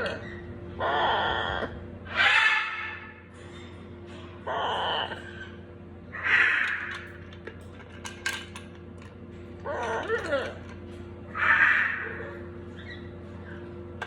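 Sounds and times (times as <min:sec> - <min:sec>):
baby parrots squawking: 0:00.0 - 0:03.2, 0:04.5 - 0:07.0, 0:11.3 - 0:13.1.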